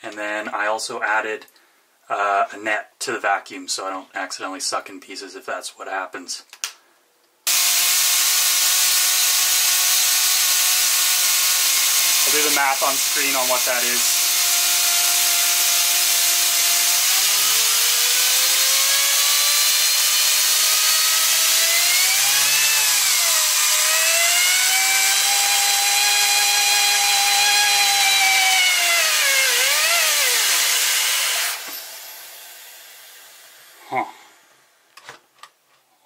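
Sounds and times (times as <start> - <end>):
vacuum cleaner rushing and whining: 7.5 - 14.2, 17.2 - 32.4.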